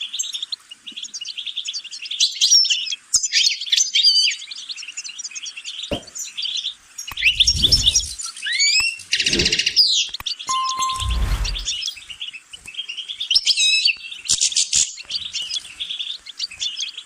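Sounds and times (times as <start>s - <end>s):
finch twittering song: 4.4s - 17.0s
low rumbles: 7.2s - 8.2s.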